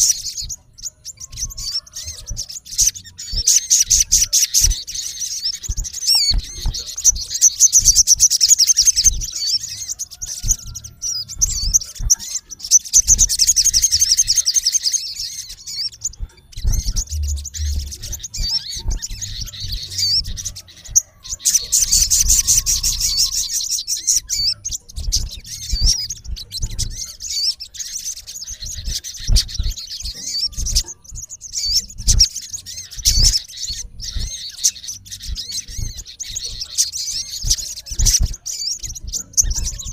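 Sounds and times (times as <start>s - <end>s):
sharp bird chirps: 0.0s - 39.9s
sunbird twittering trills: 0.0s - 39.9s
low thumps: 16.1s - 20.5s.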